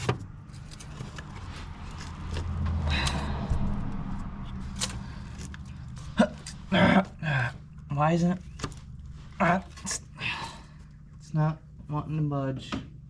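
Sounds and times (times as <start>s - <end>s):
scraping and rubbing of rubber hose: 0.0s - 10.0s
low handling rumble: 0.0s - 12.0s.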